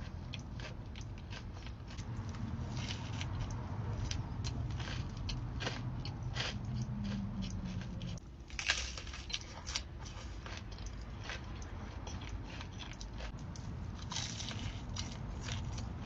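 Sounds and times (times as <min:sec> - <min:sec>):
person chewing crunchy food: 0:00.0 - 0:16.0.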